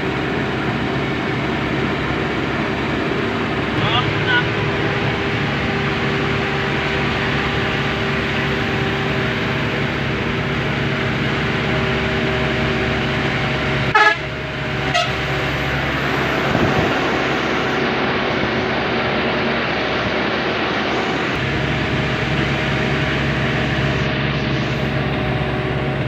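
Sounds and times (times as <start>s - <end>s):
truck engine running: 0.0s - 26.0s
truck horn toots: 3.7s - 10.1s, 13.9s - 16.5s.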